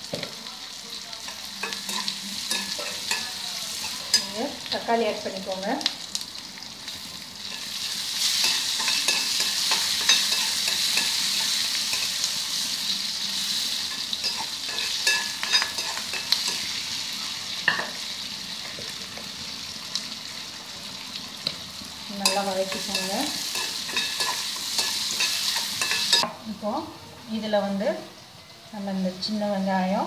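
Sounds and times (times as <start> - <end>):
vegetables sizzling in hot oil: 0.0 - 30.0
metal spatula scraping pan: 1.3 - 4.4, 7.4 - 12.3, 13.8 - 16.8, 22.2 - 26.3.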